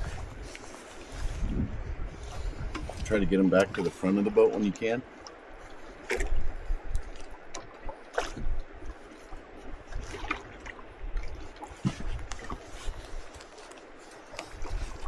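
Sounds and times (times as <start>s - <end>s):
water sloshing against boat hull: 0.0s - 15.0s
wind rumble on microphone: 0.0s - 15.0s
splashes and knocks: 6.0s - 15.0s.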